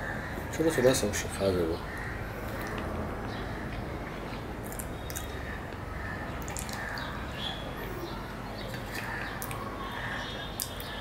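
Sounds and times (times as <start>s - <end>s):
low background noise: 0.0s - 11.0s
person chewing with wet smacks: 2.5s - 5.8s, 6.4s - 6.9s
mouth clicks: 2.6s - 5.8s, 6.4s - 7.1s, 10.5s - 11.0s.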